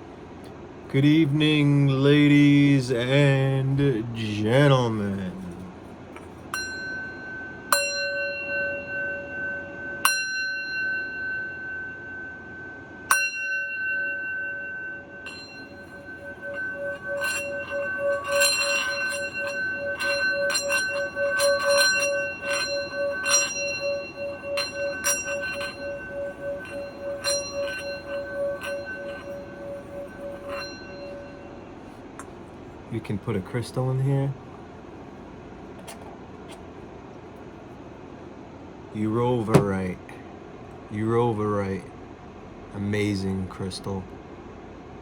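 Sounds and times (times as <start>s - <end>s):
singing bowl rim rubbed: 2.0s - 12.1s, 13.1s - 32.6s
singing bowl ringing: 6.5s - 32.4s.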